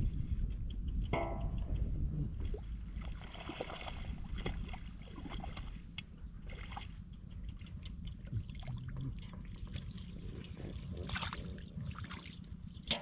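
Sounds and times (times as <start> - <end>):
steady low rumble: 0.0 - 13.0
shallow water sloshing: 2.4 - 13.0
small splashes: 2.5 - 10.1.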